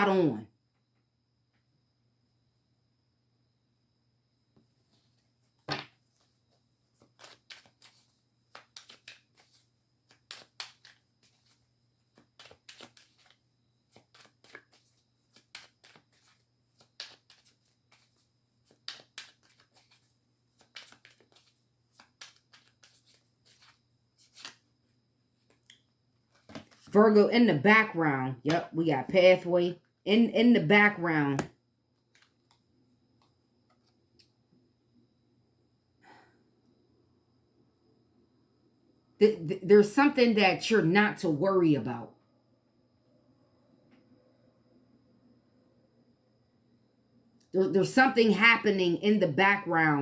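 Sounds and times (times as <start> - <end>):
cards being shuffled: 5.6 - 24.8, 25.4 - 26.9, 31.4 - 34.0.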